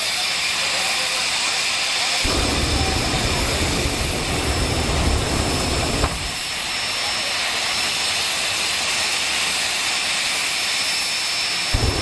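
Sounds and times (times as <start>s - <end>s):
jet engine hiss and whine: 0.0s - 12.0s
heavy low rumble: 2.3s - 6.7s, 11.8s - 12.0s.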